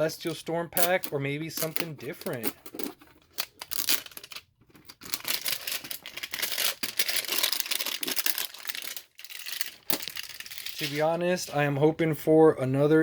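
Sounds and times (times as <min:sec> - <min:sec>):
card packaging crinkling and tearing: 0:03.4 - 0:11.1.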